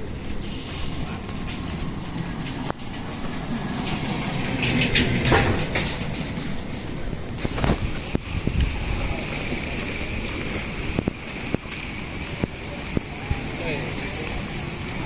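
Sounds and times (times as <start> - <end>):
vehicle rumbling: 0.0 - 15.0
rattling: 0.4 - 9.2.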